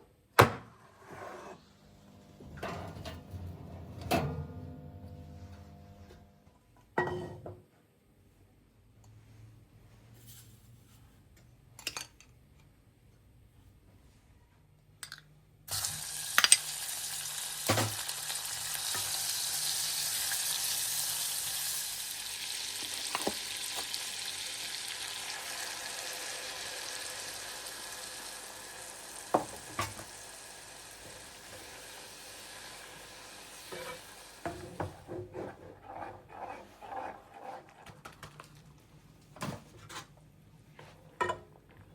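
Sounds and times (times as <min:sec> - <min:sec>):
food sizzling in hot oil: 0:15.7 - 0:34.9.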